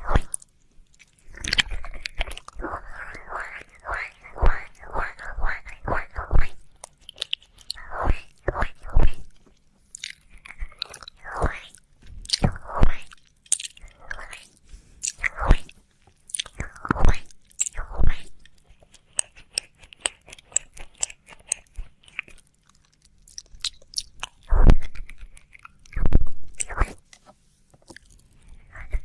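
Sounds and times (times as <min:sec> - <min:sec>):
quick mouth clicks: 0:10.0 - 0:15.7.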